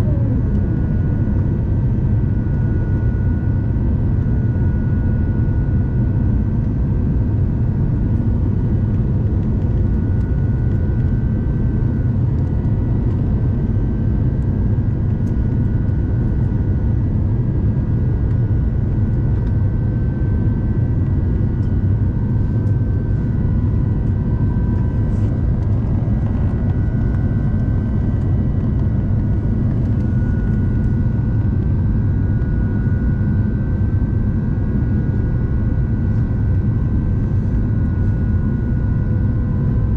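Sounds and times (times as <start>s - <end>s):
airplane cabin rumble: 0.0s - 39.9s
faint steady whine: 0.0s - 39.9s.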